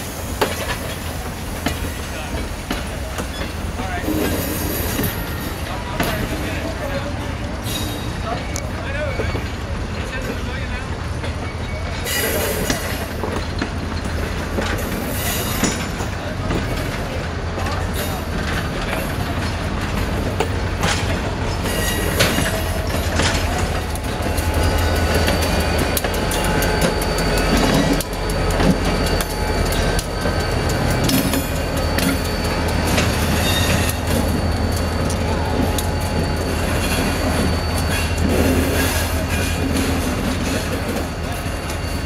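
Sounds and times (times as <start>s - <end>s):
diesel locomotive rumbling: 0.0s - 42.0s
wheels clicking over rail joints: 5.0s - 42.0s
thin wheel squeal: 24.3s - 39.5s.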